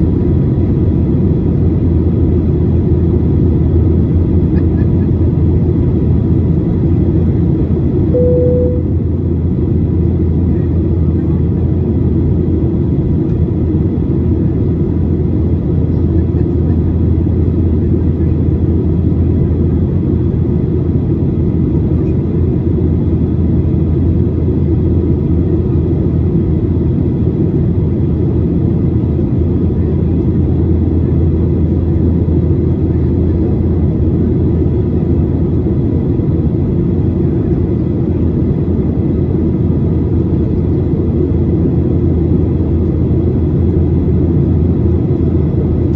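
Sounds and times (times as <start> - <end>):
airplane cabin engine rumble: 0.0 - 45.9
faint steady higher tones: 8.1 - 9.1.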